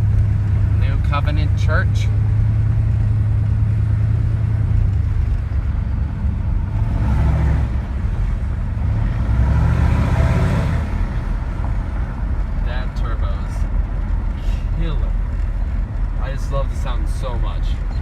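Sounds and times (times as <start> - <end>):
diesel engine drone in cab: 0.0 - 18.0.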